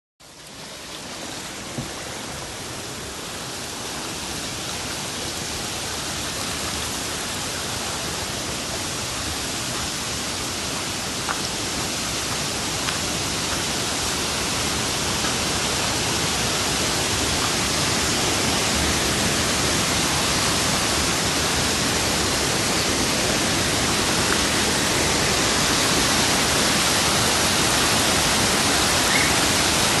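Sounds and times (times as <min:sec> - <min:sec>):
rushing water: 0:00.2 - 0:30.0.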